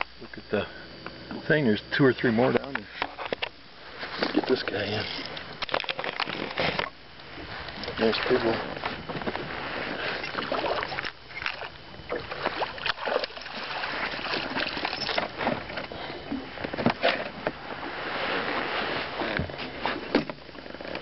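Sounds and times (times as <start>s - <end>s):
water splashing against boat: 4.0s - 21.0s.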